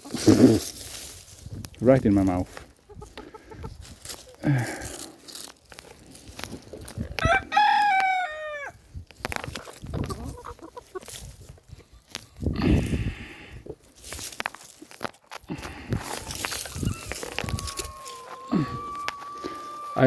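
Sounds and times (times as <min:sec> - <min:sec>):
crunching and rustling in soil: 0:00.0 - 0:20.0
hens clucking softly: 0:02.8 - 0:03.9, 0:09.4 - 0:11.2, 0:15.9 - 0:20.0
rooster crowing: 0:07.2 - 0:08.8, 0:16.8 - 0:20.0.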